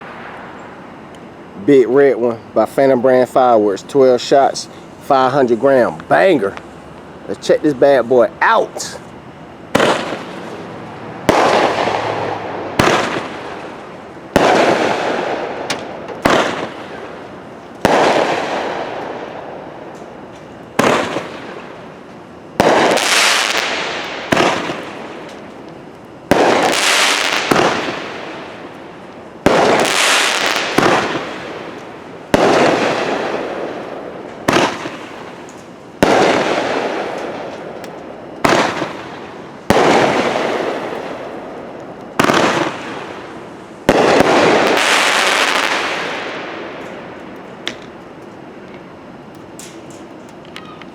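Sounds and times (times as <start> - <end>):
firework bangs: 9.7 - 10.6, 11.2 - 20.0, 20.7 - 21.9, 22.6 - 25.5, 26.2 - 28.7, 29.4 - 37.8, 38.4 - 47.9
firework hissing tail: 22.6 - 25.2, 29.4 - 33.8.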